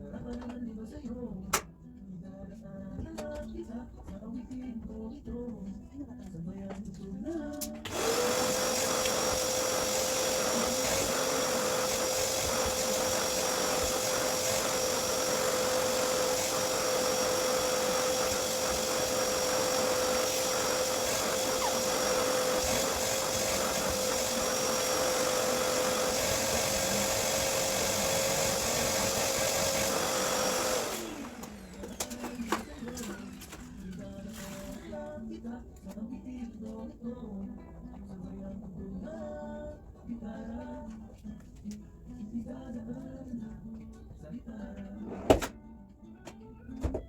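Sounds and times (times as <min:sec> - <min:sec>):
vacuum cleaner motor whining: 0:07.8 - 0:34.8.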